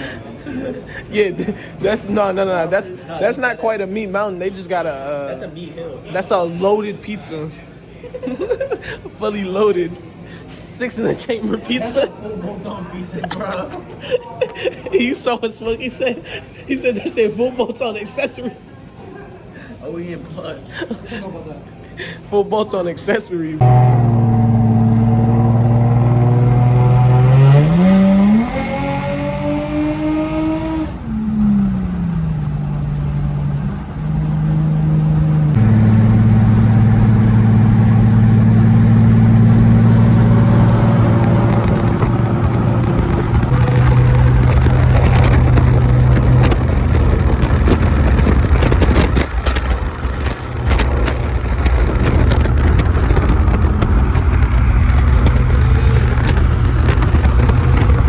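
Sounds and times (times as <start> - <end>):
car engine running and revving: 23.6 - 58.0.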